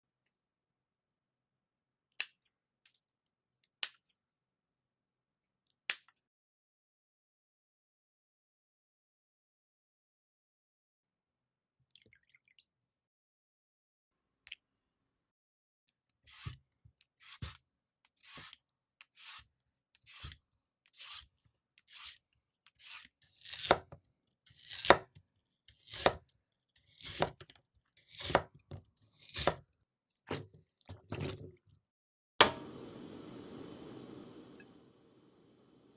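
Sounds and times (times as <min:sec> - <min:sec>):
knife cutting on cutting board: 0:16.3 - 0:16.6, 0:17.2 - 0:17.6, 0:18.2 - 0:21.3, 0:21.9 - 0:22.2, 0:22.8 - 0:23.9, 0:24.6 - 0:25.1, 0:25.7 - 0:26.2, 0:26.9 - 0:27.4, 0:28.0 - 0:29.6.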